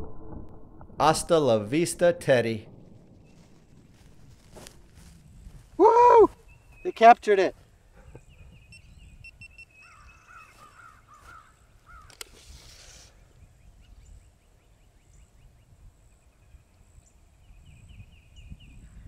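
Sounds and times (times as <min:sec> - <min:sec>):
faint bird calls: 0:07.9 - 0:14.1
sharp click: 0:12.0 - 0:12.4
brief hiss: 0:12.2 - 0:13.2.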